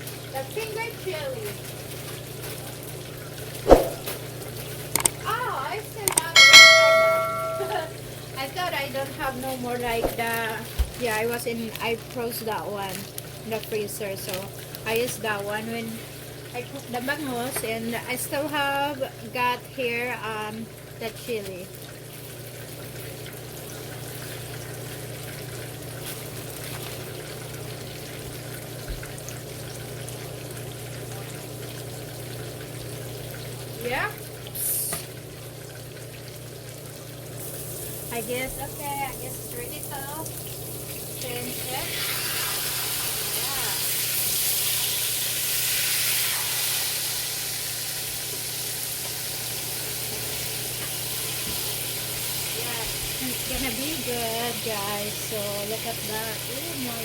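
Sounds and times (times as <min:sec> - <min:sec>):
fish sizzling in oil: 0:00.0 - 0:57.0
low steady hum: 0:05.0 - 0:15.5.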